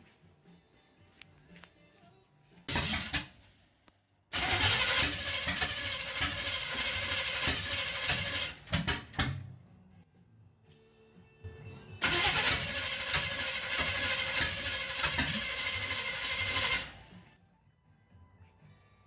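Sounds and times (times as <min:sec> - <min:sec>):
engine starter cranking: 0:02.7 - 0:03.5, 0:04.3 - 0:09.4, 0:12.0 - 0:17.2
engine blips: 0:04.3 - 0:09.3, 0:12.0 - 0:17.2.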